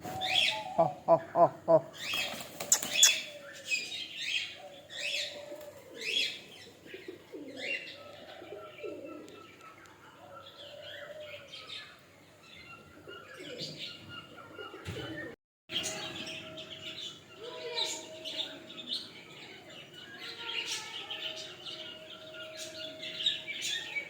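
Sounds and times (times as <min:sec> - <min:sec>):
budgerigars chirping and chattering: 0:00.3 - 0:05.4
wing flapping: 0:02.1 - 0:03.2.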